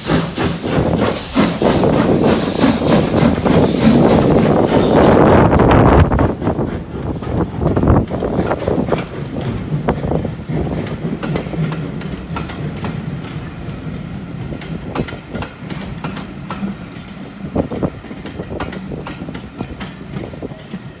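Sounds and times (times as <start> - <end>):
train coaches rumbling: 0.0 - 21.0
wheels clicking over rail joints: 7.6 - 21.0.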